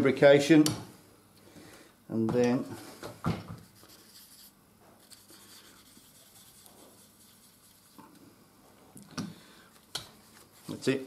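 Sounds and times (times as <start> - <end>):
sandpaper rubbing on metal: 3.8 - 8.0.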